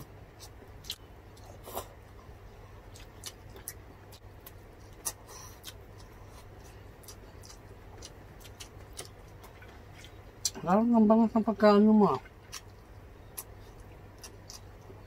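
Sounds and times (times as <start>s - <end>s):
chewing and wet mouth clicks: 2.9s - 10.6s.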